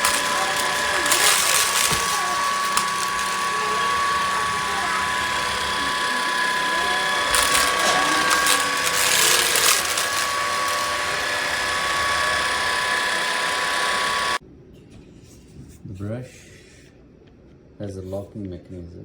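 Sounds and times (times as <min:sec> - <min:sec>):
stick vacuum whining: 0:00.0 - 0:14.4.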